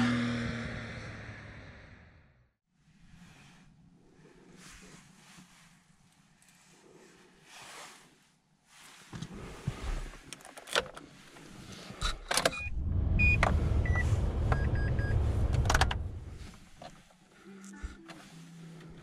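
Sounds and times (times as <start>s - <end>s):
car engine starting and idling: 11.8s - 16.8s
short beeps: 12.5s - 15.2s.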